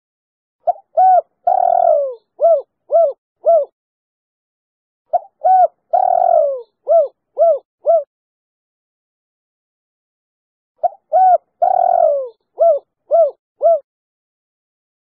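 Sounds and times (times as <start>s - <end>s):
dove cooing: 0.7s - 3.7s, 5.1s - 8.1s, 10.8s - 13.9s.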